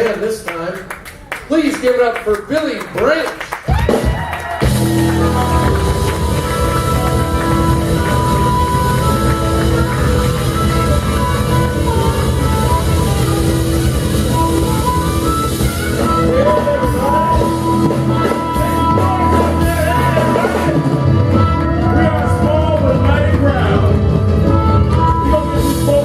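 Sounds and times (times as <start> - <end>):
live blues band playing: 3.8 - 26.0.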